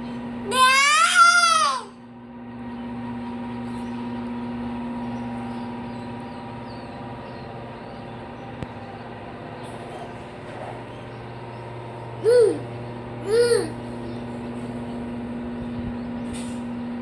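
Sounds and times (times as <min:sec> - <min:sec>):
steady mechanical hum: 0:00.0 - 0:17.0
child squealing: 0:00.5 - 0:02.0, 0:12.2 - 0:12.6, 0:13.3 - 0:13.8.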